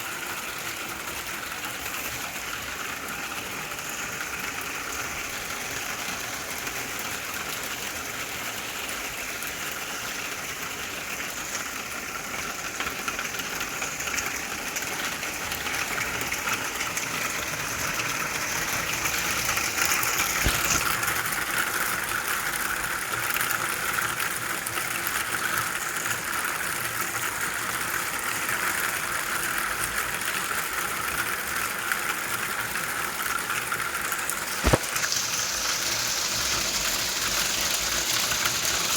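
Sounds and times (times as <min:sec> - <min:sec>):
hail and rain pattering: 0:00.1 - 0:38.9
sharp knock: 0:34.6 - 0:34.9.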